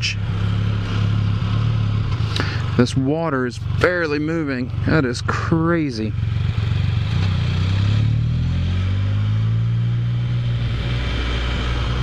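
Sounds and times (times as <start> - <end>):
engine accelerating: 0.0 - 12.0
wind noise: 10.3 - 12.0.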